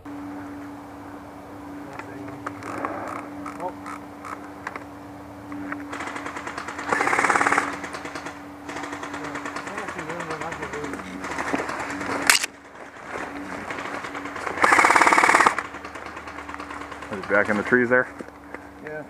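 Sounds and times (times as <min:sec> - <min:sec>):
airsoft guns firing: 0:05.9 - 0:17.6.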